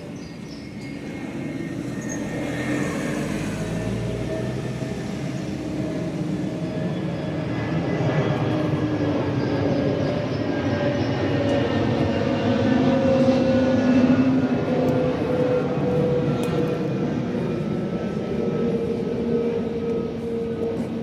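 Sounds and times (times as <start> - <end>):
vehicle rumbling: 0.6 - 8.4.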